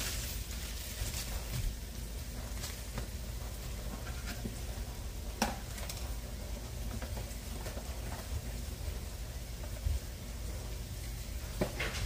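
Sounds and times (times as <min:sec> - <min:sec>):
sausage sizzling in a skillet: 0:00.0 - 0:01.5
plastic bag rustling: 0:00.0 - 0:04.7.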